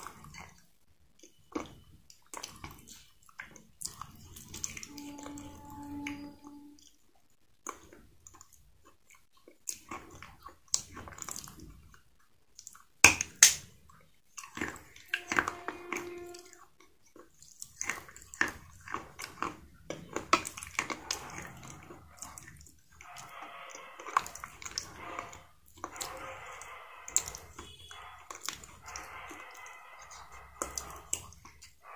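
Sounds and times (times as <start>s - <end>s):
chewing crunchy food: 0.0s - 6.0s, 6.6s - 31.9s
wet mouth sounds: 16.0s - 31.9s.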